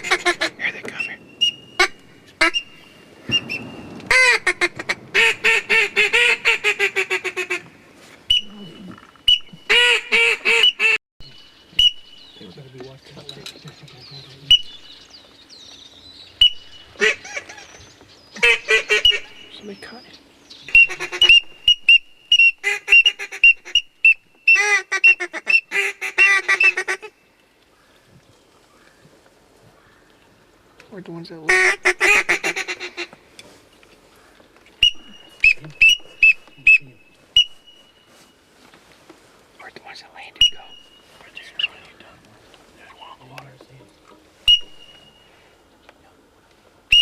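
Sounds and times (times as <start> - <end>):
duck quack: 0.0 - 0.6, 1.8 - 2.6, 4.1 - 7.6, 9.3 - 11.0, 17.0 - 17.7, 18.4 - 19.4, 20.7 - 21.8, 24.5 - 27.1, 31.5 - 33.1
ducks whistling and chirping: 0.0 - 7.6, 8.3 - 12.9, 13.8 - 27.2, 34.8 - 38.3, 40.4 - 41.8, 44.4 - 45.6.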